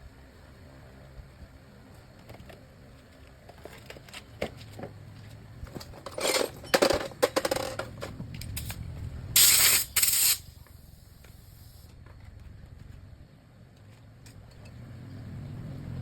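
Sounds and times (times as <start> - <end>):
clicks and rubbing of parts: 5.7 - 10.4
spray hiss bursts: 9.4 - 11.9.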